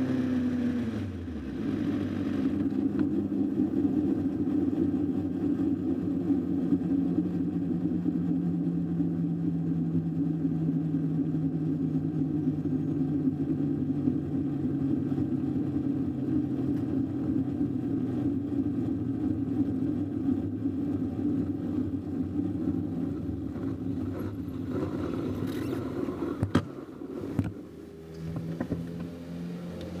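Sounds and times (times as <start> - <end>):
quieter steady tone: 26.9 - 30.0.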